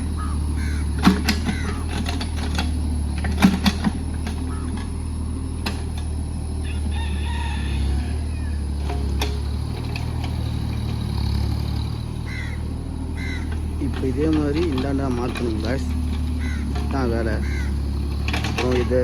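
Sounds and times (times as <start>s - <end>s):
rooster crowing: 0.0s - 2.6s, 4.4s - 5.4s, 6.2s - 13.8s, 15.6s - 18.9s
excavator engine running: 0.0s - 19.0s.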